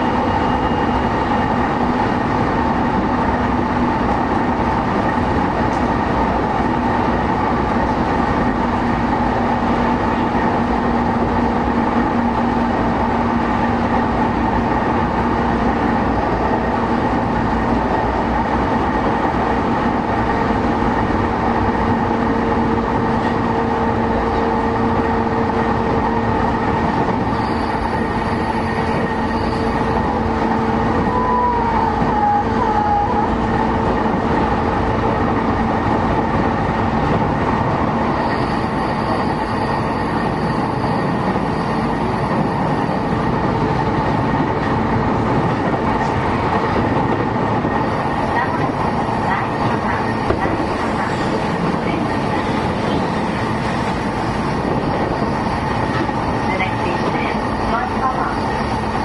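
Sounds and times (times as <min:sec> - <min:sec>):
faint squeal: 0:00.0 - 0:01.6
wheel on rail rumble: 0:00.0 - 0:59.0.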